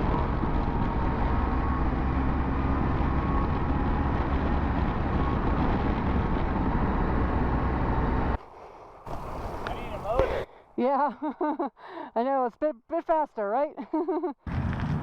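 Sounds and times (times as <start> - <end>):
motorcycle engine at road speed: 0.0 - 10.4
wind noise: 0.0 - 10.6.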